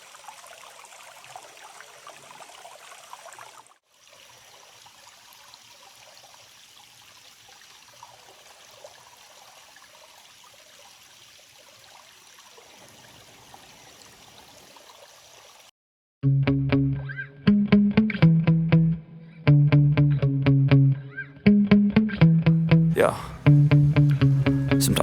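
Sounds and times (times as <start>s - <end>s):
flowing water: 0.0s - 15.7s.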